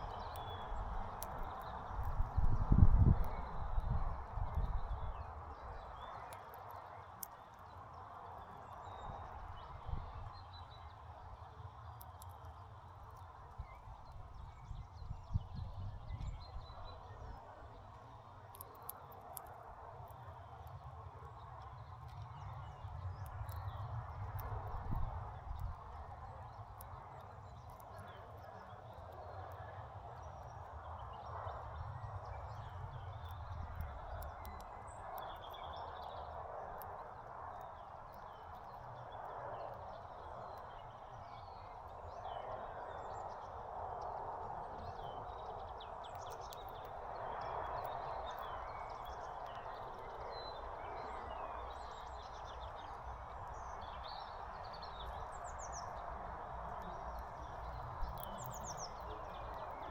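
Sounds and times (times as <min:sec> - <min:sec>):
songbirds chirping: 0:00.0 - 0:59.9
background rumble and hiss: 0:44.9 - 0:59.9.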